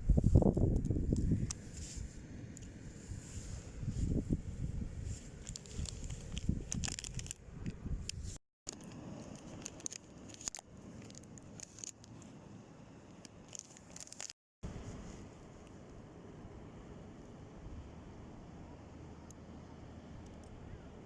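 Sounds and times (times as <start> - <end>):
wind rumble on microphone: 0.0 - 8.4.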